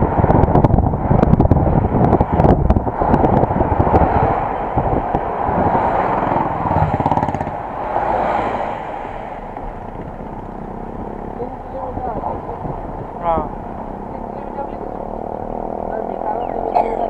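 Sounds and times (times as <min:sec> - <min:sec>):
road rumble: 0:00.0 - 0:17.0
vehicle engine: 0:00.0 - 0:17.0
wind noise: 0:00.0 - 0:17.0.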